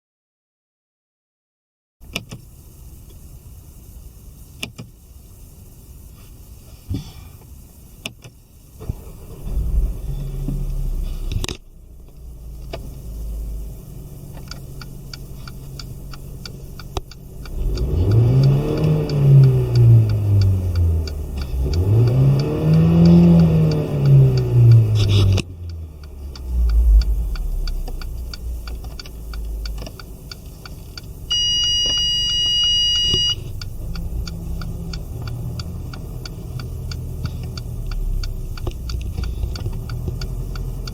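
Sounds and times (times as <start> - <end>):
car engine starting and idling: 2.0 - 40.9
engine revving: 8.8 - 11.6, 12.2 - 31.0, 33.1 - 40.9.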